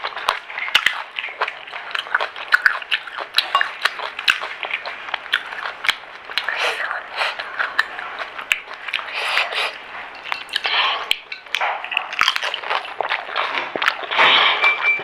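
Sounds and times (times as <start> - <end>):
crunching and chewing: 0.0 - 14.9.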